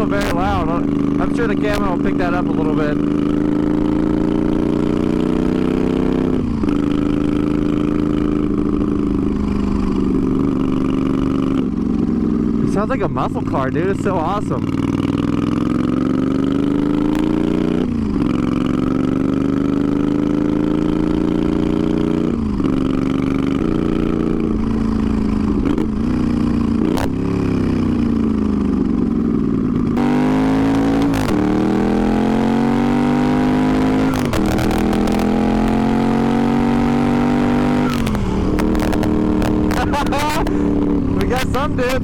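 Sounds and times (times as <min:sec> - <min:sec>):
motorcycle engine accelerating: 0:00.0 - 0:42.0.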